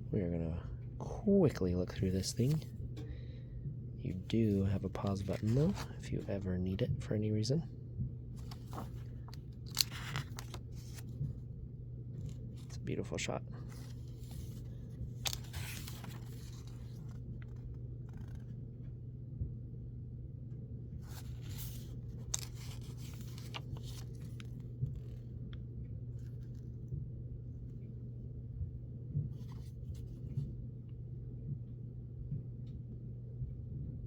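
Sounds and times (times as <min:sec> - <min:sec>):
steady low hum: 0:00.0 - 0:34.0
paper pages turning: 0:01.9 - 0:02.7, 0:04.1 - 0:06.4, 0:08.4 - 0:11.4, 0:12.2 - 0:13.0, 0:13.6 - 0:18.5, 0:21.0 - 0:25.2, 0:26.2 - 0:26.7, 0:29.4 - 0:30.4.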